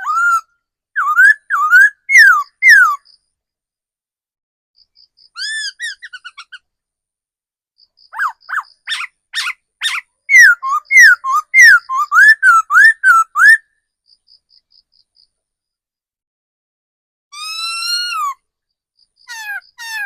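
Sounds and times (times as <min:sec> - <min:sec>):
bird singing loud whistles: 0:01.0 - 0:03.0, 0:08.2 - 0:13.6.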